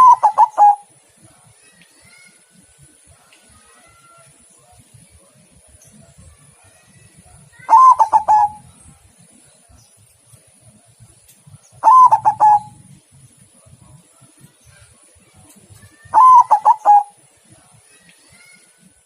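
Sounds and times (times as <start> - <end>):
dove cooing: 0.0 - 0.9, 7.6 - 8.7, 11.8 - 12.8, 16.1 - 17.2.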